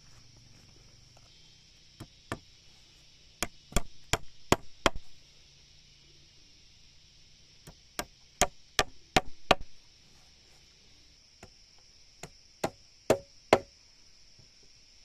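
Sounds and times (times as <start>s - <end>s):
tool striking wood: 3.4s - 5.1s, 8.0s - 9.7s, 12.6s - 13.7s.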